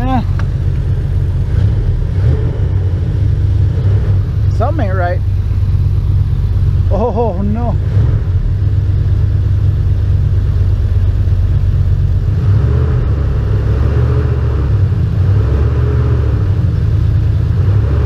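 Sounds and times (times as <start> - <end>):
truck engine idling: 0.0 - 13.6.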